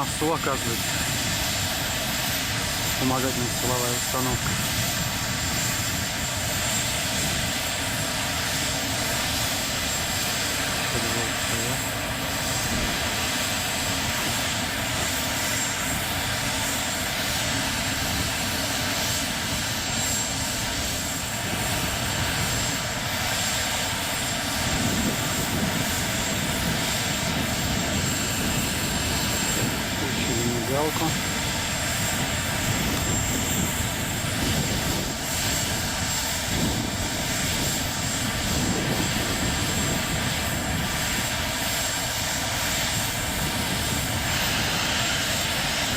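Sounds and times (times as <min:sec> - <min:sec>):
gas turbine roar with whistle: 0:00.0 - 0:45.9.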